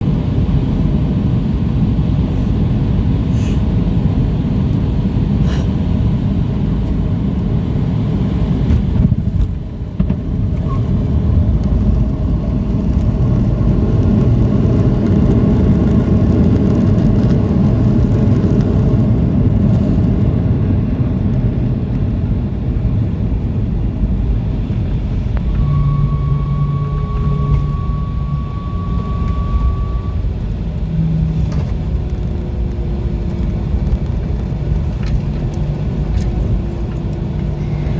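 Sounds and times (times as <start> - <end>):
jet engines rumbling: 0.0 - 37.9
high whine: 8.4 - 37.9.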